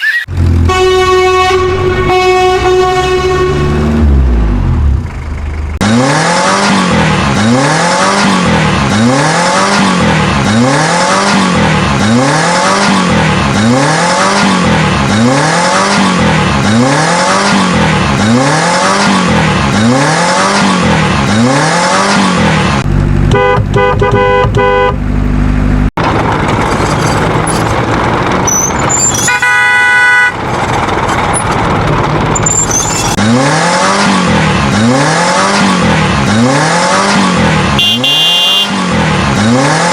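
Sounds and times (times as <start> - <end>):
noisy vehicle sound: 0.0 - 39.9
car horn: 0.6 - 4.4, 23.2 - 25.1, 28.5 - 30.4, 37.7 - 39.6.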